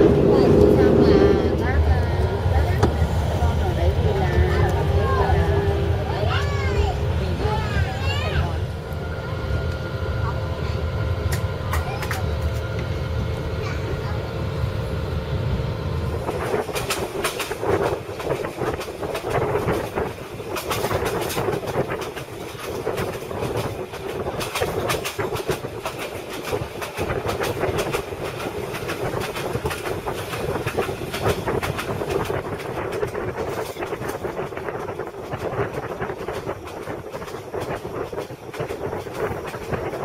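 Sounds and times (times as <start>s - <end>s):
train running drone: 0.0s - 40.0s
train wheels clacking over rail joints: 16.2s - 40.0s.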